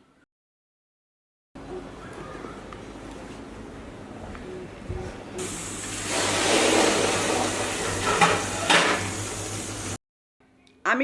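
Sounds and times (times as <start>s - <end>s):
tap water hissing on cooker: 5.4s - 10.0s.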